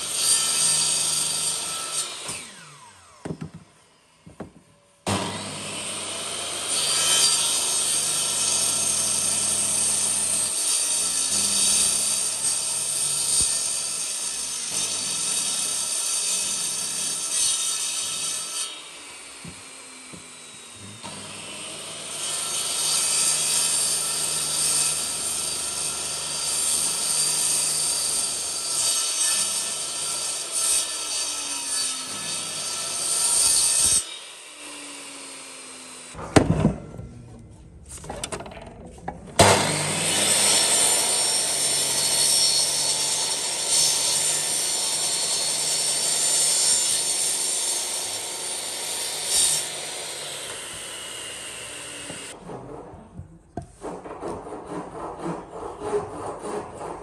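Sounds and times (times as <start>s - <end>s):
power tool cutting wood: 0.0s - 36.5s, 38.0s - 52.4s
sharp knocks: 36.2s - 39.9s.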